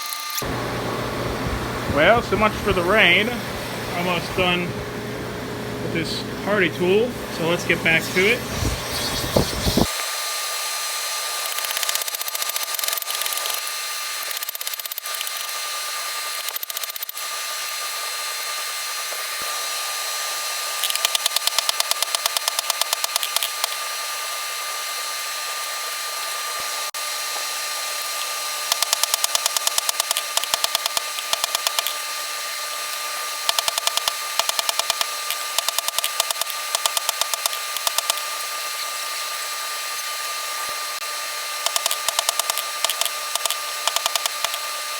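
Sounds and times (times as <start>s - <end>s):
rapid hammer blows on steel: 0.4s - 4.9s
steady machine hum: 0.4s - 9.9s.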